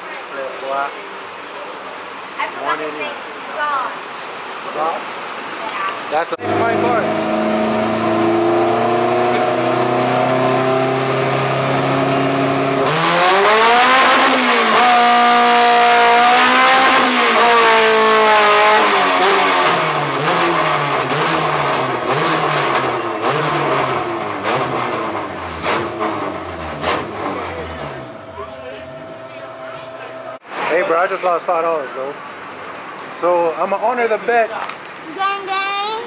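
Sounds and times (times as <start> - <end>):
car engine revving on a dyno: 6.4 - 30.4.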